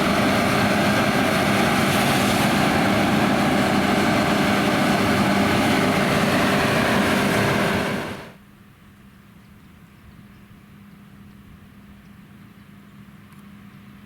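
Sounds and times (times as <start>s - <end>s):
combine harvester engine: 0.0s - 8.4s.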